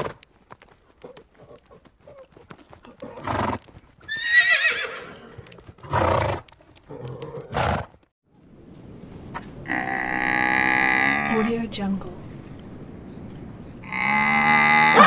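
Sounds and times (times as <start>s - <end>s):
hoofbeats: 0.0s - 8.1s
horse whinnying: 3.1s - 7.9s, 13.8s - 15.0s.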